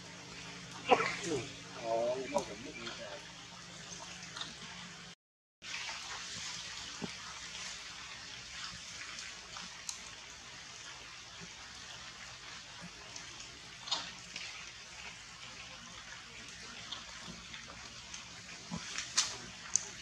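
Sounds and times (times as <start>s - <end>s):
rain falling on foliage: 5.6s - 20.0s.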